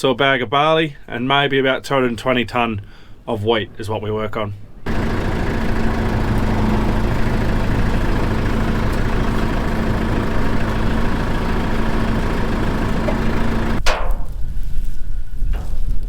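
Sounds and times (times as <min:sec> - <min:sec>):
tractor engine running: 0:04.8 - 0:14.4.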